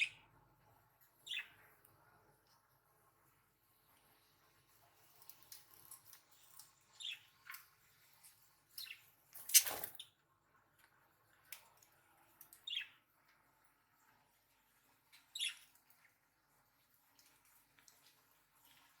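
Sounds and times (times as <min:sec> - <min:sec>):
budgerigars chirping softly: 0:00.0 - 0:00.2, 0:01.2 - 0:01.7, 0:06.5 - 0:07.4, 0:12.6 - 0:13.0, 0:15.1 - 0:15.7
small clicks and scratches: 0:03.9 - 0:10.1, 0:16.8 - 0:19.0.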